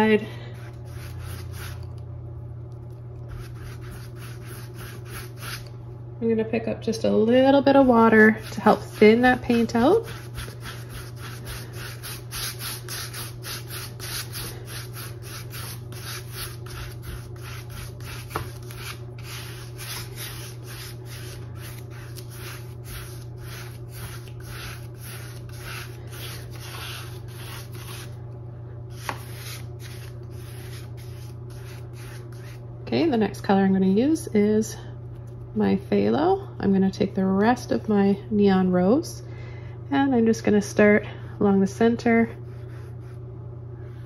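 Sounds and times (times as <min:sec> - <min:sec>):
low steady hum: 0:00.0 - 0:44.0
paintbrush scrubbing on canvas: 0:00.6 - 0:01.9, 0:03.3 - 0:05.7, 0:08.1 - 0:28.2, 0:28.9 - 0:32.6.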